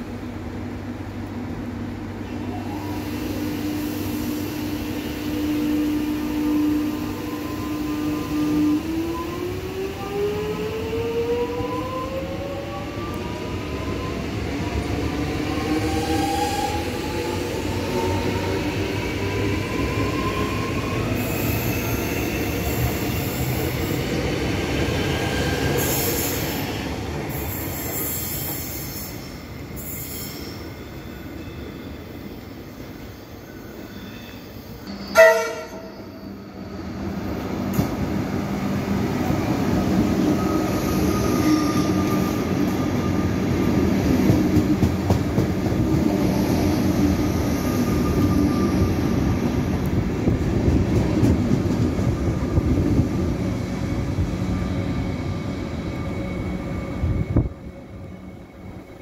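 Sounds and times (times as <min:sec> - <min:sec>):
train pulling out: 0:02.2 - 0:59.0
train horn blast: 0:05.3 - 0:07.1, 0:35.1 - 0:36.0.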